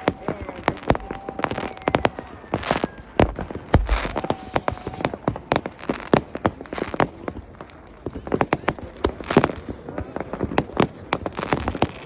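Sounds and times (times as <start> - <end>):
firecrackers banging: 0.0 - 7.8
fireworks crackling hiss: 0.0 - 8.6
deep firework boom: 2.5 - 6.1.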